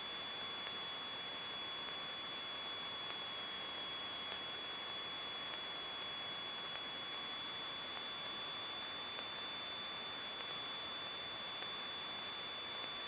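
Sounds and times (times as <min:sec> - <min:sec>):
high steady whine: 0:00.0 - 0:13.0
faint regular ticks: 0:04.2 - 0:10.9, 0:11.5 - 0:13.0.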